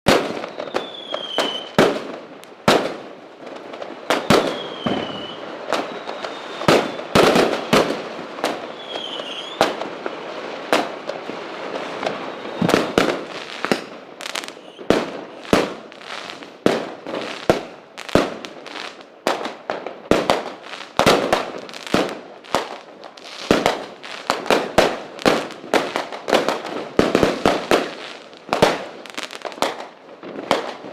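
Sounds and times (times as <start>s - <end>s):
fireworks whistles: 0.1s - 2.1s, 4.0s - 9.9s, 10.7s - 19.0s
fireworks bangs and pops: 0.1s - 30.9s
fireworks crackling: 0.1s - 30.9s.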